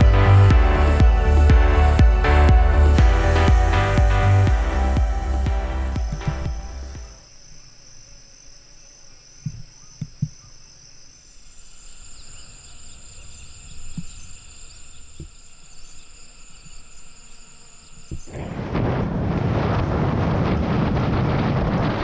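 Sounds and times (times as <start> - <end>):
soft low knocks: 0.0 - 7.1
crickets chirping chorus: 0.0 - 18.6.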